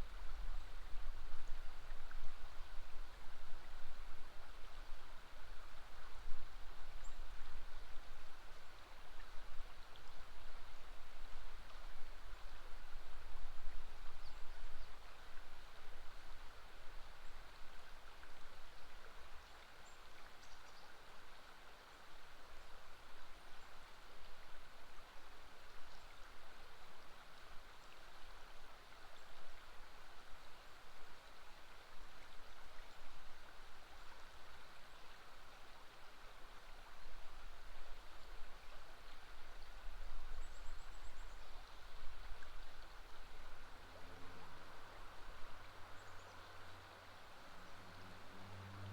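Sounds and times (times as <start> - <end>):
river water rushing: 41.5 - 48.9.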